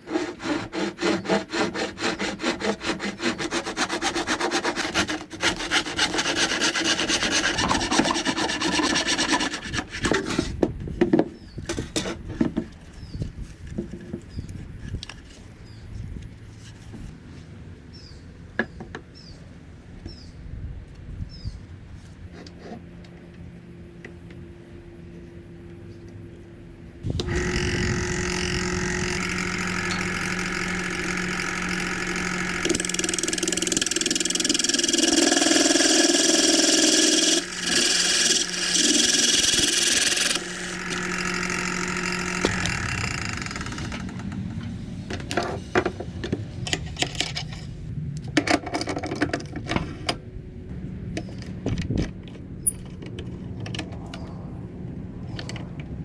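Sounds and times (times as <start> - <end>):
power tool cutting bamboo: 0.0 - 10.5, 27.0 - 45.0
electric power tool running: 4.2 - 9.8, 27.0 - 45.3
scattered clicks and knocks: 27.2 - 47.6.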